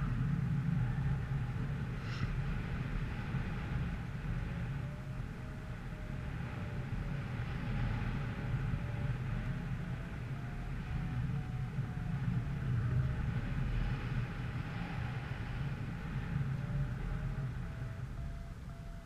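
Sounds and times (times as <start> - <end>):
faint wavering tone: 0.0 - 19.0
low rumble: 0.0 - 19.0
brief hiss: 2.0 - 2.4.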